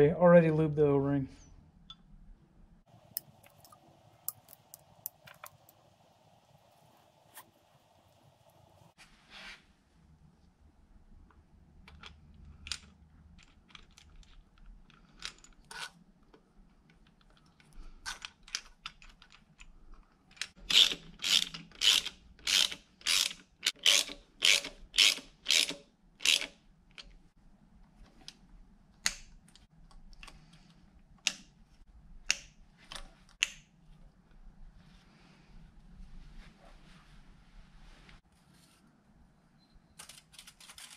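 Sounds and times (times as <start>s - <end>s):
ratchet wrench clicking: 20.7s - 26.5s.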